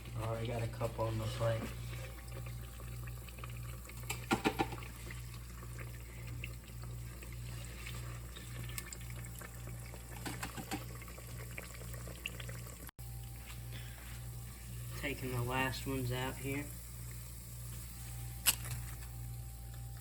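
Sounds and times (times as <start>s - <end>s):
hot oil bubbling in deep fryer: 0.0s - 13.4s.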